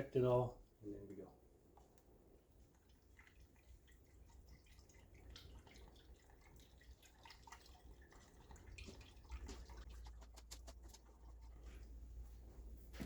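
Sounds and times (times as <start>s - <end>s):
oil glugging from a bottle: 2.6s - 12.2s.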